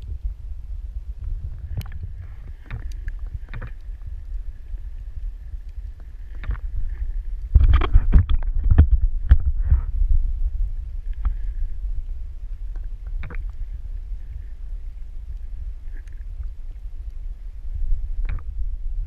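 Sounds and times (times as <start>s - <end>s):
underwater low rumble: 0.0s - 19.0s
sharp underwater clicks: 1.2s - 9.5s, 12.6s - 13.7s, 18.2s - 18.5s.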